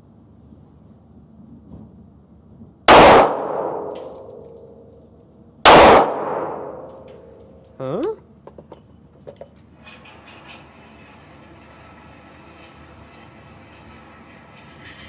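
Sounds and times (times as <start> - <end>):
handgun shots: 2.9 - 4.5, 5.7 - 7.1.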